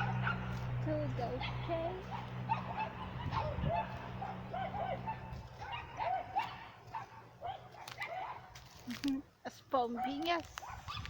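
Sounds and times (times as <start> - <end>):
dog whimpering and yipping: 2.5 - 6.6.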